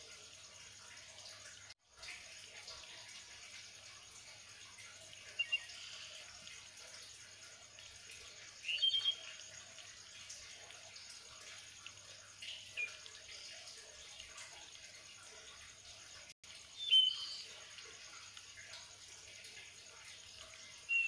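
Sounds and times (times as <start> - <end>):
bird chirping: 5.3 - 6.2, 8.6 - 9.4, 12.4 - 13.5, 16.7 - 17.5.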